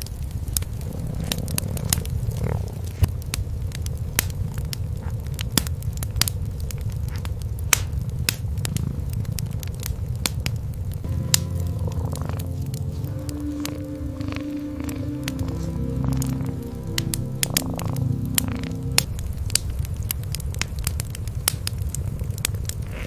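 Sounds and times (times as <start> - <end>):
wood fire crackling and popping: 0.0 - 23.0
cat purring: 0.8 - 3.0, 11.6 - 19.1.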